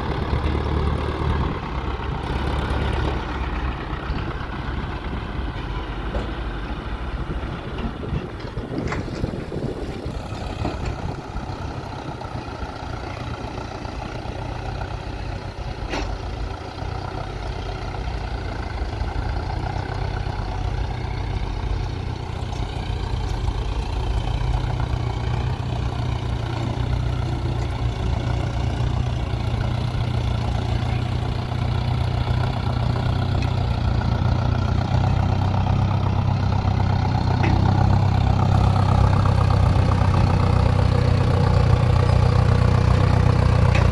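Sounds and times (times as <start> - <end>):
heavy diesel engine running: 0.0 - 43.9.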